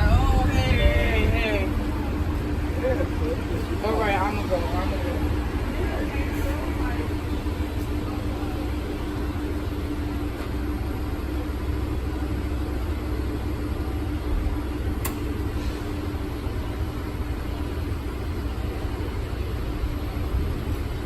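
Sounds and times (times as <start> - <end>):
constant hum: 0.0 - 21.0
vehicle engine rumbling: 0.0 - 21.0
sharp click: 15.0 - 15.3.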